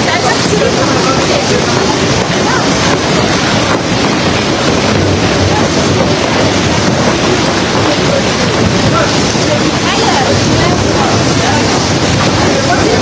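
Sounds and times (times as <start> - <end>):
heavy rain pouring: 0.0 - 13.0
wind buffeting microphone: 0.0 - 13.0.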